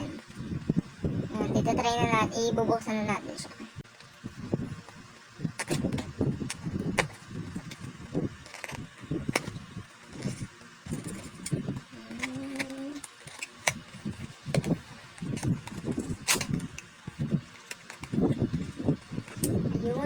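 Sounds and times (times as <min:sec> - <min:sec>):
low uneven rumble: 0:00.0 - 0:20.0
packaging clicks and rustles: 0:04.8 - 0:19.6.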